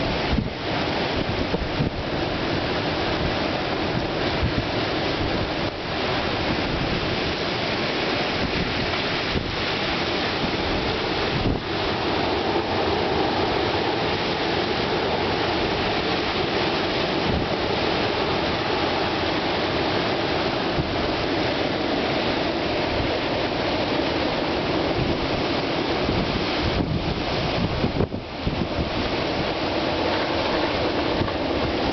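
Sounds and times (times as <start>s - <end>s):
strong wind buffeting microphone: 0.0s - 31.9s.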